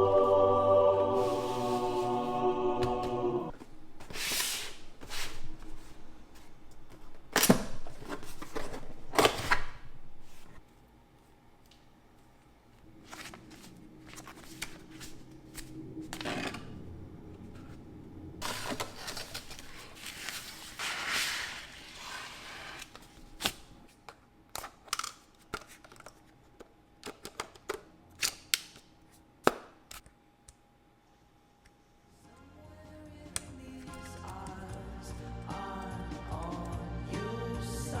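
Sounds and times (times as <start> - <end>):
packaging rustling: 18.4 - 23.8.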